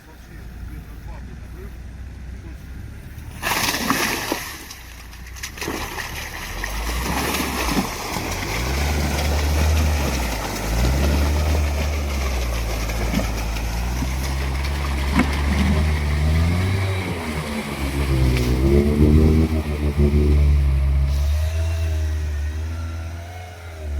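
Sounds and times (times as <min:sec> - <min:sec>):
atv engine revving: 0:00.0 - 0:23.9.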